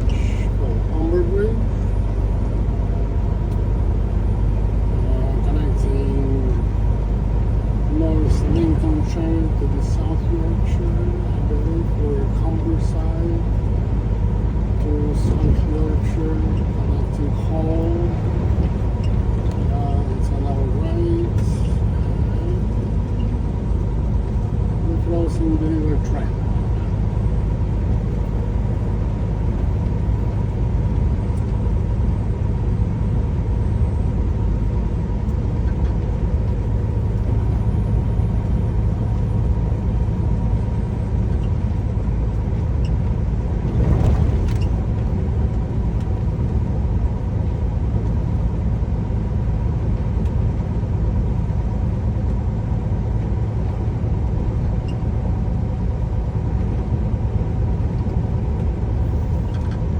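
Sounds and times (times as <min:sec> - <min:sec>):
truck engine and road rumble: 0:00.0 - 0:59.9.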